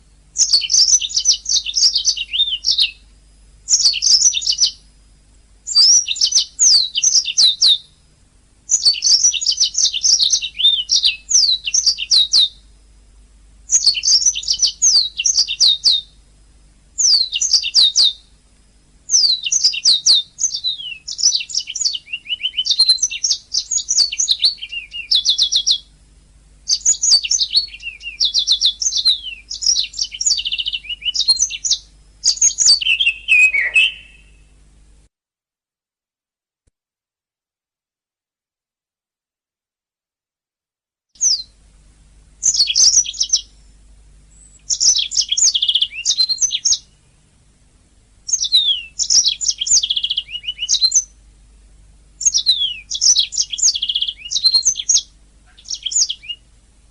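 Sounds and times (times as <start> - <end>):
canary singing: 0.4 - 3.0, 3.7 - 4.9, 5.6 - 8.0, 8.7 - 12.7, 13.7 - 16.2, 17.0 - 18.3, 19.1 - 25.9, 26.6 - 34.5, 41.2 - 41.6, 42.4 - 43.6, 44.3 - 47.0, 48.2 - 51.2, 52.2 - 56.5.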